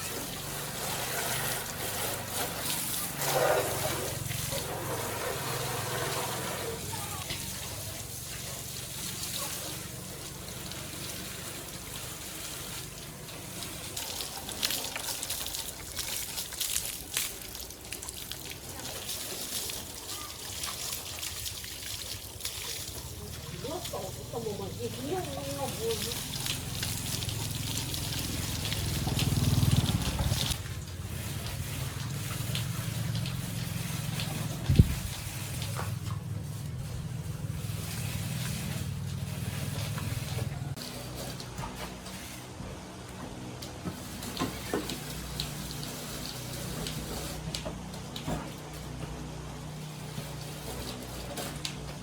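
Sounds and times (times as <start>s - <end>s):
water trickling and splashing: 0.0s - 52.0s
small engine throbbing: 23.6s - 40.6s.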